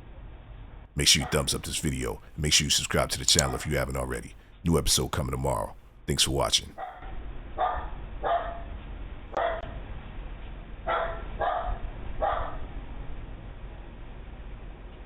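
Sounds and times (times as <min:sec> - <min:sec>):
dog barking: 0:07.6 - 0:08.7, 0:09.4 - 0:09.6, 0:10.9 - 0:12.6.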